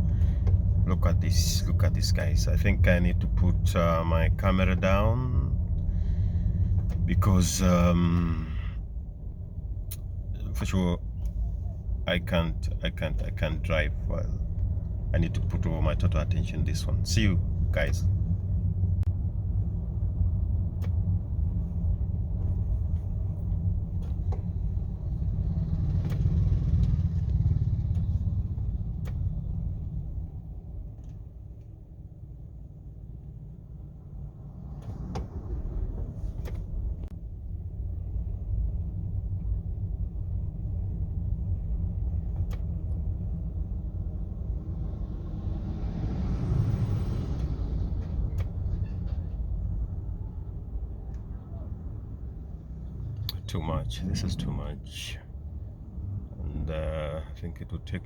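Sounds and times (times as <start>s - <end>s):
car rumble in traffic: 0.0s - 58.0s.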